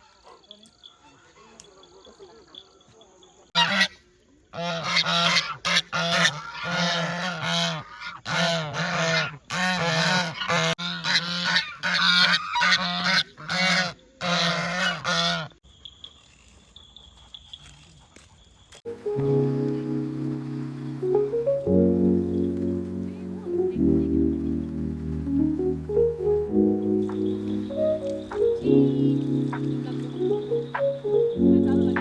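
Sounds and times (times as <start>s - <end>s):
geese honking: 3.6s - 3.9s, 4.6s - 15.5s, 19.0s - 32.0s.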